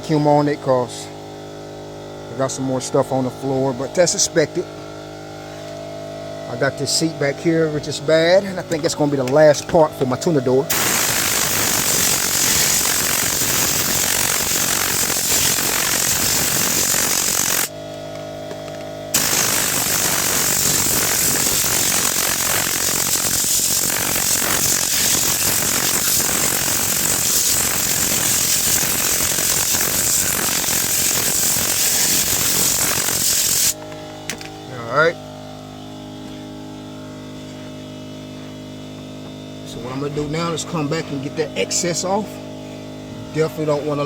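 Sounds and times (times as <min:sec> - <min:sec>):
compressed-air cleaning gun hissing: 0:10.7 - 0:17.7, 0:19.1 - 0:33.8.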